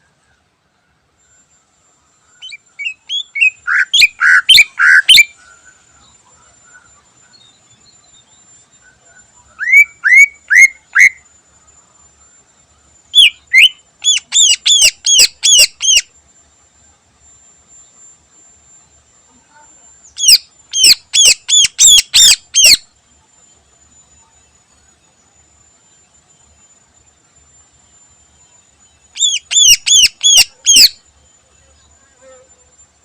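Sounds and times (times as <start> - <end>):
bird singing whistled phrases: 2.4 - 5.4, 8.8 - 11.2, 13.2 - 16.1, 20.1 - 22.9, 29.2 - 31.0.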